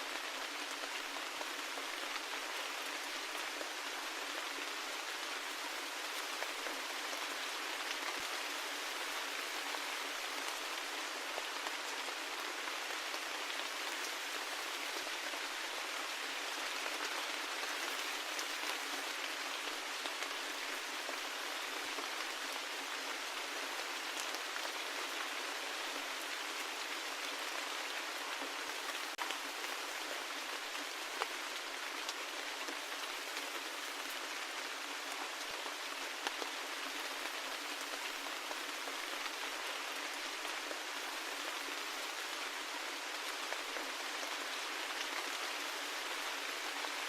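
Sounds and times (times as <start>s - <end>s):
steady rain hiss: 0.0s - 47.0s.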